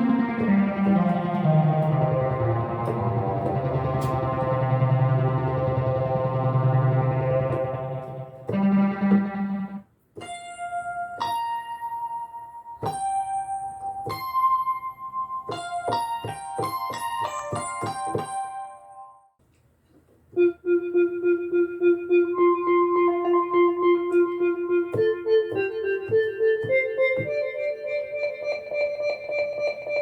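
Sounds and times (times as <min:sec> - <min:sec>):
repeated pulsing synth note: 0:00.0 - 0:09.8, 0:20.4 - 0:30.0
synth chord: 0:00.0 - 0:09.8, 0:20.4 - 0:30.0
electric piano notes: 0:00.0 - 0:13.2, 0:20.4 - 0:30.0.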